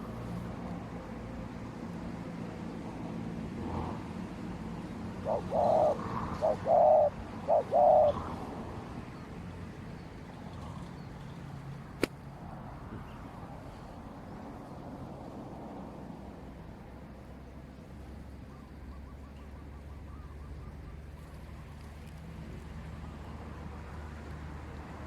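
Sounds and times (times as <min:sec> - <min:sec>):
dove cooing: 0:05.2 - 0:08.5.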